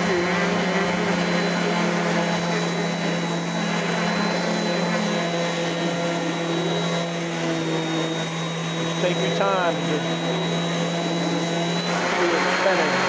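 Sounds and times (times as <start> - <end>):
orbit sander humming: 0.0 - 13.0.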